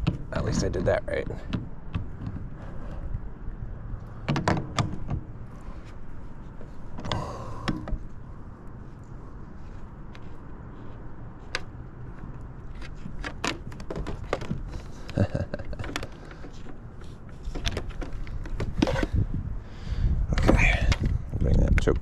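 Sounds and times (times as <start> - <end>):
metal hardware clicking and knocking: 4.2 - 5.3, 15.6 - 16.8.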